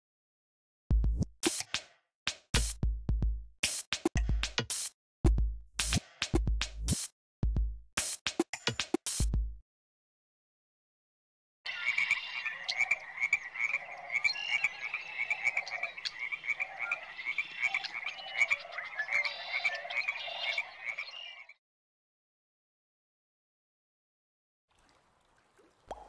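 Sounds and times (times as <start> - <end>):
chorus of animal calls: 11.7 - 21.6.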